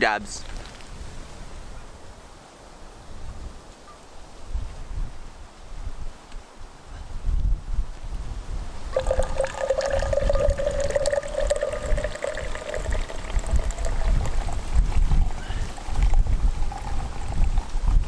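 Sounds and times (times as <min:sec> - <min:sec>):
wind rumble on microphone: 0:04.4 - 0:18.0
liquid pouring into cup: 0:08.9 - 0:18.0.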